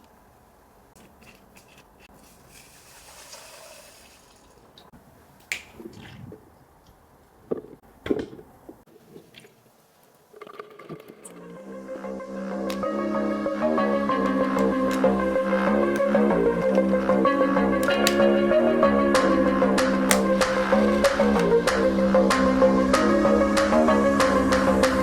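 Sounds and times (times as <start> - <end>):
sharp plastic clicks: 17.8 - 18.3.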